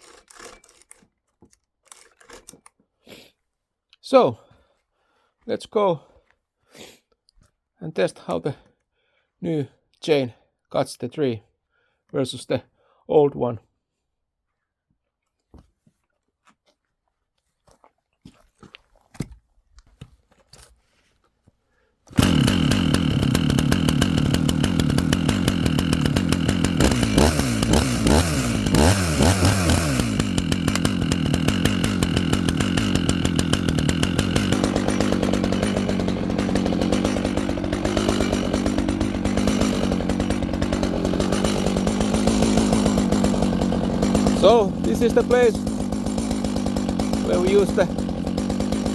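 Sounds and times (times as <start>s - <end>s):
chainsaw revving: 0.0s - 1.0s, 22.1s - 48.9s.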